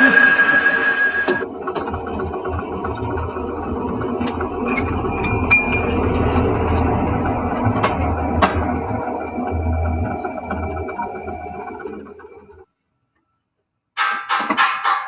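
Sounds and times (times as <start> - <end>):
high-pitched squeal: 0.0 - 1.4, 2.5 - 12.6
metal lathe humming: 0.0 - 12.6.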